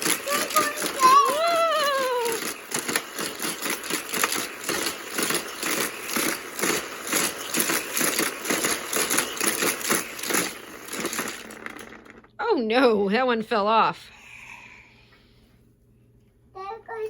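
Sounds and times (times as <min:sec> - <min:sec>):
toy cars clattering on plastic track: 0:00.0 - 0:12.3.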